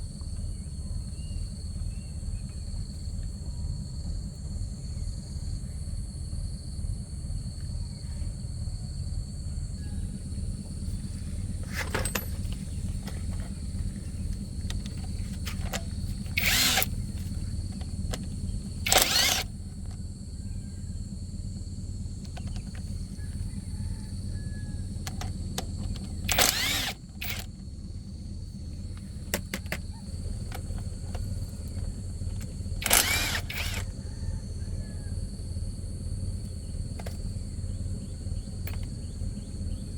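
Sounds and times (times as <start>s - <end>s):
insects chirring: 0.0s - 39.9s
steady low hum: 0.0s - 39.9s
power tool bursts: 14.7s - 19.9s, 25.1s - 27.5s, 32.3s - 34.0s.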